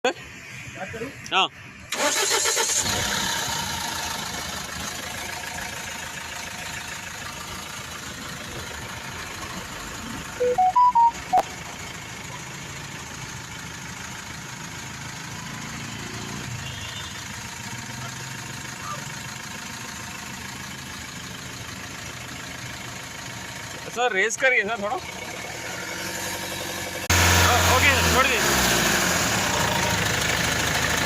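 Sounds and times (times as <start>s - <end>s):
car engine idling: 1.9s - 15.6s, 16.6s - 31.0s
short electronic beeps: 10.4s - 11.6s.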